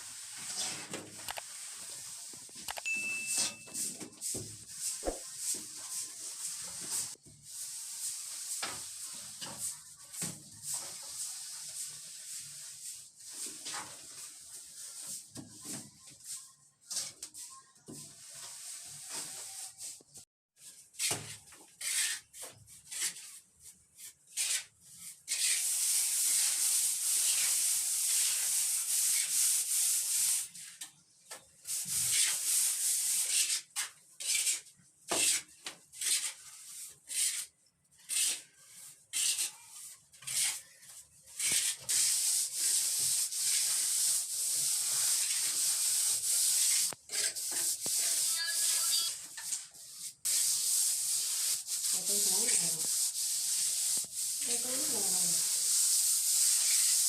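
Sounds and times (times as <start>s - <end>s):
plastering tool scraping plaster: 20.6s - 30.8s, 31.6s - 57.0s.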